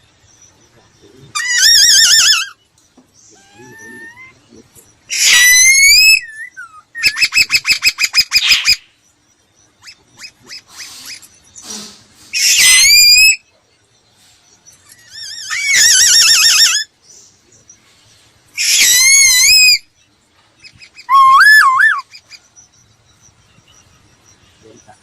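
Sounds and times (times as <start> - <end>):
laughingthrush whistled song: 3.4 - 9.0, 9.6 - 13.6, 18.6 - 20.0, 20.6 - 25.0.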